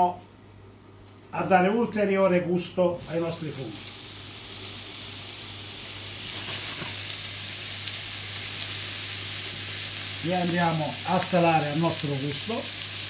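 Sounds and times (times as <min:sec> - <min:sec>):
mushrooms sizzling in oil: 0:03.0 - 0:13.0.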